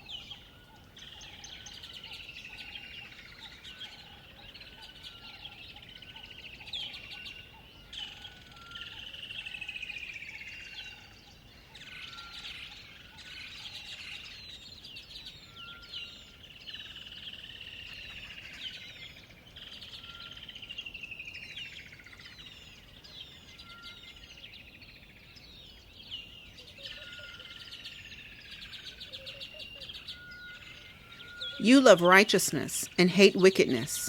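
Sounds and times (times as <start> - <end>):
songbirds singing: 0.0 - 34.0.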